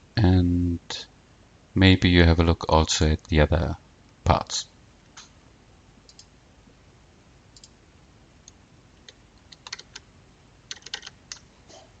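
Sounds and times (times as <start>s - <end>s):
computer clicks and taps: 6.0s - 6.3s, 8.5s - 10.0s, 10.7s - 11.4s.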